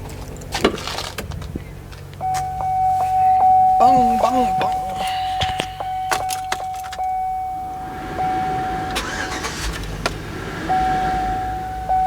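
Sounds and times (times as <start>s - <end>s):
car engine starting and idling: 0.0s - 12.0s
warning chime tone: 2.2s - 9.8s, 10.6s - 12.0s.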